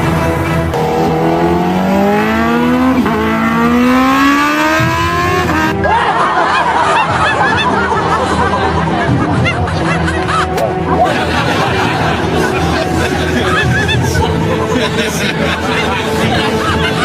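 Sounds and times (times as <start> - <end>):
car engine accelerating: 0.0 - 5.8
background music: 0.0 - 17.0.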